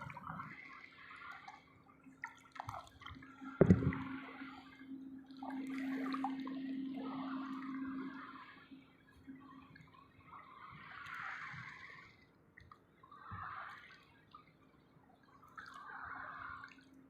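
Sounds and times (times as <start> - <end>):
water splashing and dripping: 0.0 - 8.8
faint steady hum: 0.0 - 17.0.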